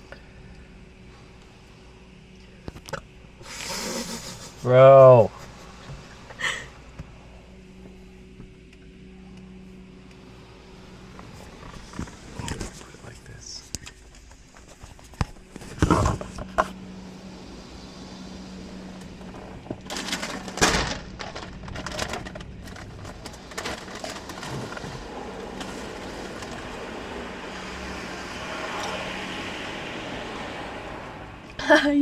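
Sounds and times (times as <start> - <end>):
car wash machine hum: 0.0 - 32.0
car wash hiss: 3.4 - 6.9, 24.5 - 31.5.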